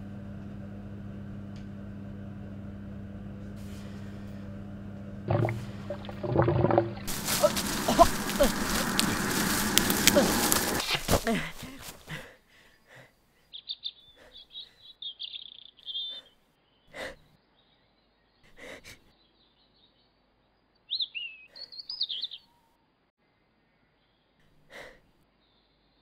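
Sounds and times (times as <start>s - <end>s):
songbirds chirping and warbling: 12.7s - 22.8s.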